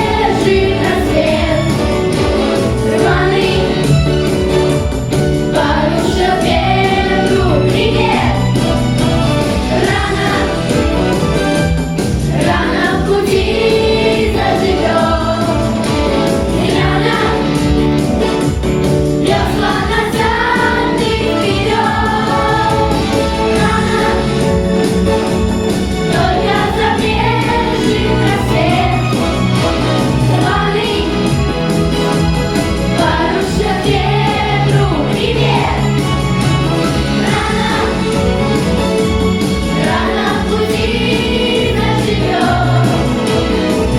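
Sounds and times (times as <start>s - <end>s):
choral singing with instruments: 0.0s - 43.9s.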